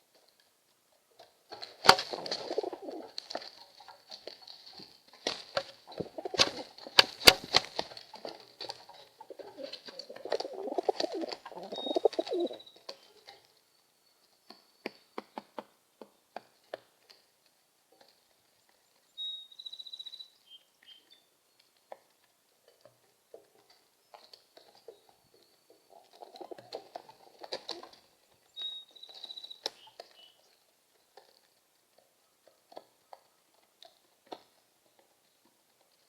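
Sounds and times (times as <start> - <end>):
rustling: 0.0 - 13.6
bird chirping: 8.9 - 15.5, 18.6 - 21.8, 28.1 - 31.1.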